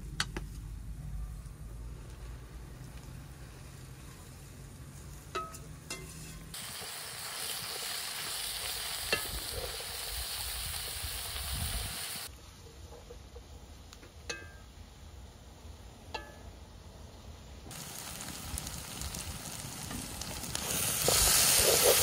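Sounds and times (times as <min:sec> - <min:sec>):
food sizzling in hot oil: 0:06.5 - 0:12.3, 0:17.7 - 0:22.0.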